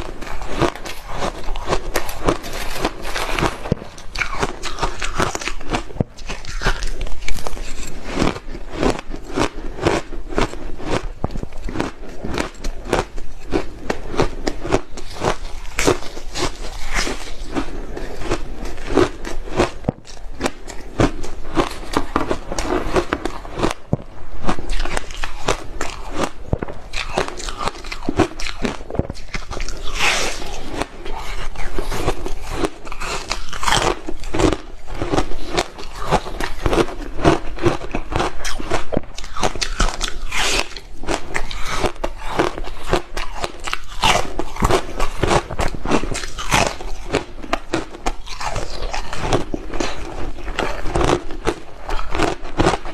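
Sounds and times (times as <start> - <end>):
person chewing hard ice: 0.0 - 52.9.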